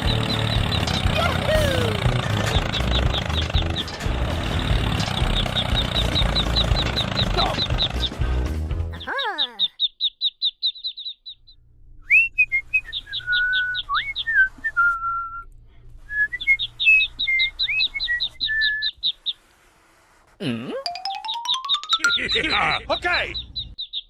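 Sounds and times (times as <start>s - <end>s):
rapid high-pitched chirping: 4.6s - 8.2s
whistling with upward swoops: 12.0s - 15.5s, 16.1s - 19.0s.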